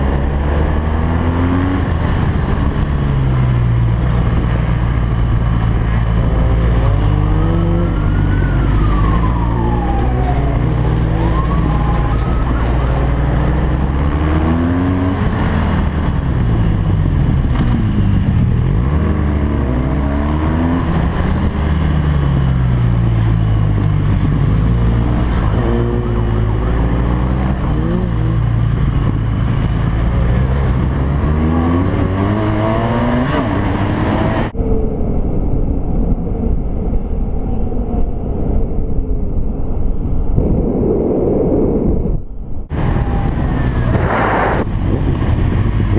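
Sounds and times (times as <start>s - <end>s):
motorcycle engine revving: 10.6s - 34.6s.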